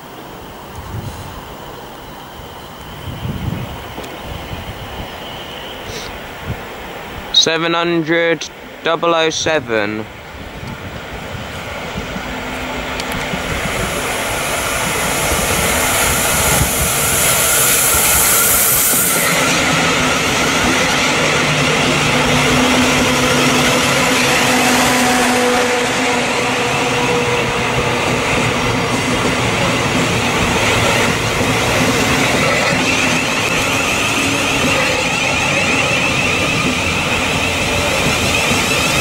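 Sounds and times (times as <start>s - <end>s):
high hiss: 0.0s - 22.5s
train carriages rushing over rails: 0.0s - 39.0s.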